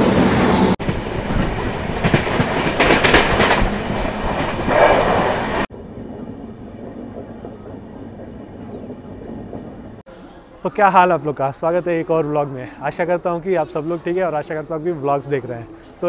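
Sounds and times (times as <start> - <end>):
train wheels clattering on track: 0.0 - 5.7.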